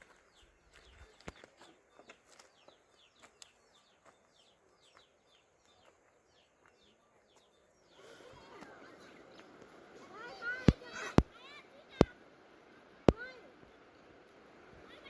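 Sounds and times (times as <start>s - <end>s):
small bird chirping: 0.0s - 8.4s.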